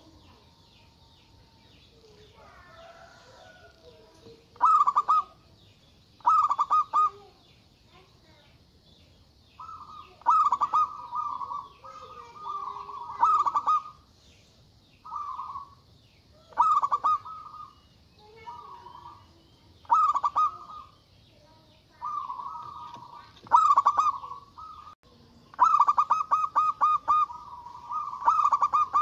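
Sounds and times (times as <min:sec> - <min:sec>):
faint high chirping: 0:00.0 - 0:29.0
dove cooing: 0:01.6 - 0:05.6, 0:06.2 - 0:07.4, 0:09.6 - 0:14.1, 0:15.0 - 0:15.8, 0:16.4 - 0:21.0, 0:21.9 - 0:29.0.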